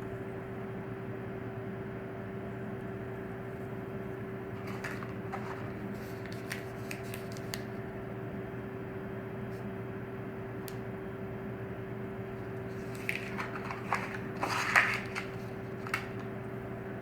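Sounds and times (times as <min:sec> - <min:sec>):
low hum with held tone: 0:00.0 - 0:17.0
clicks and rustles of handling: 0:04.6 - 0:07.7, 0:12.4 - 0:16.4.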